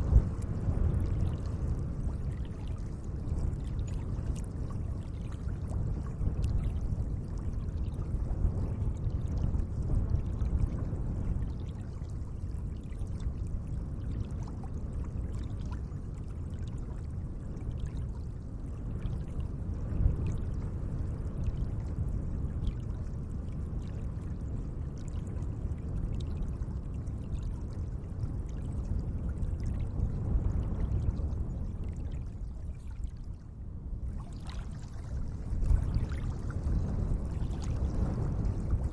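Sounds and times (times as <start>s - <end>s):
small splashes and drips: 31.8s - 38.9s
lake water washing: 34.1s - 38.9s.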